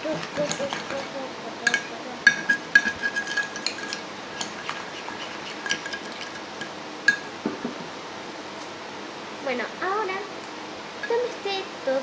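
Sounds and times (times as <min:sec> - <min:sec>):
slime being stirred: 0:00.0 - 0:06.7
utensil clinking against bowl: 0:00.0 - 0:07.3.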